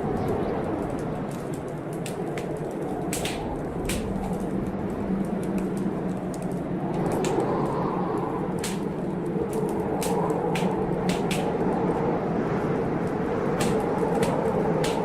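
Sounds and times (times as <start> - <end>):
blizzard wind blowing: 0.0 - 15.0
wood fire crackling and popping: 0.0 - 15.0.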